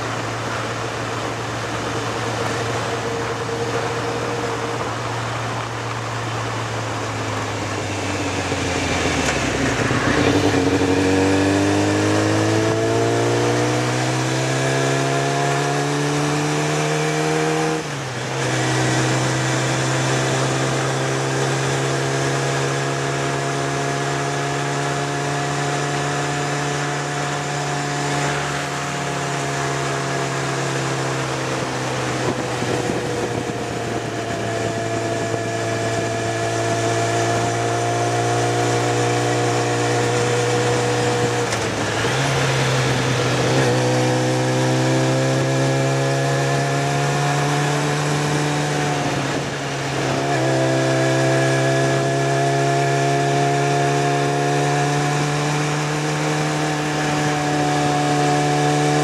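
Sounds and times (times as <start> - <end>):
motorcycle engine running: 0.0 - 14.3, 17.2 - 59.0
wind noise: 26.7 - 51.4.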